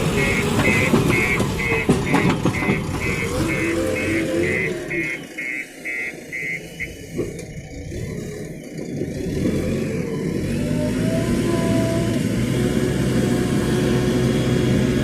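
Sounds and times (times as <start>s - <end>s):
reversing alarm beeping: 0.0s - 7.2s
diesel engine running: 0.0s - 15.0s.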